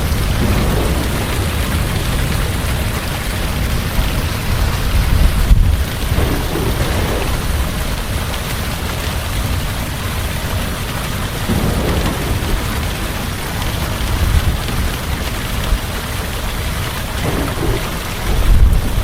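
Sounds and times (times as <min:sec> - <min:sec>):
heavy rain falling: 0:00.0 - 0:19.0
low rumbling thunder: 0:00.0 - 0:19.0.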